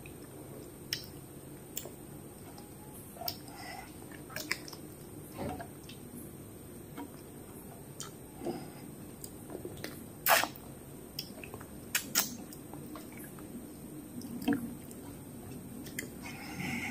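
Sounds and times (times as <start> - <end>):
mouth smacks and clicks: 9.2 - 10.6, 11.2 - 12.6.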